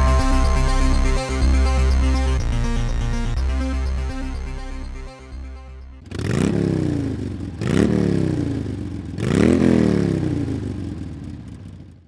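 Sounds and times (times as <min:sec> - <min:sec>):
motorcycle engine revving: 0:05.9 - 0:12.0.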